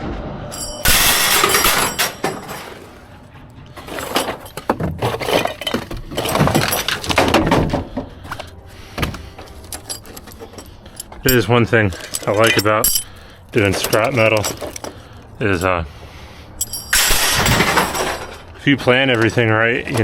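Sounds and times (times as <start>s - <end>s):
scrap metal crashing: 0.1s - 8.0s, 16.6s - 20.0s
scrap clanking and clinking: 0.5s - 15.9s, 16.6s - 20.0s.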